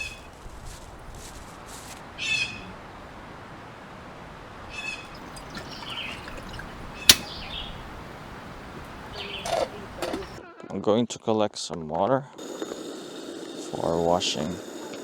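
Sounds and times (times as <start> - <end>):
bird giving harsh calls: 2.2 - 2.7, 4.7 - 10.4
soft bird chirping: 4.6 - 10.4.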